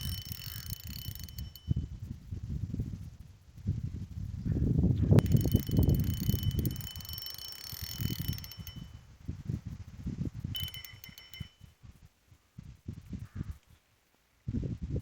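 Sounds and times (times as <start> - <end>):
fishing reel clicking rapidly: 0.0 - 2.0, 5.1 - 9.1, 10.5 - 11.6.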